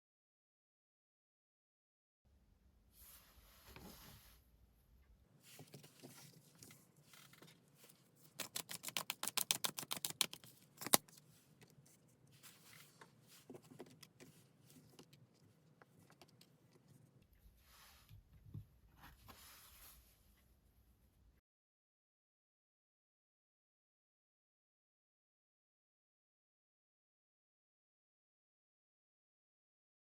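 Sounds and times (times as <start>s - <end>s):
cards riffle shuffling: 8.2s - 11.2s.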